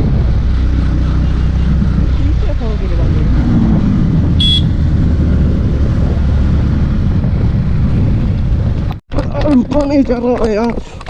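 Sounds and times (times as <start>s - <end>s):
motorcycle engine rumble: 0.0s - 9.7s
wind buffeting microphone: 0.0s - 11.0s.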